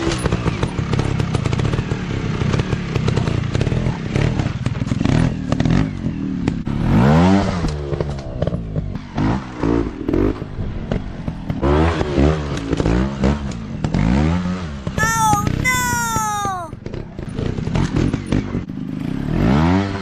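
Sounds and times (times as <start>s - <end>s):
high falling cries: 15.0s - 16.8s.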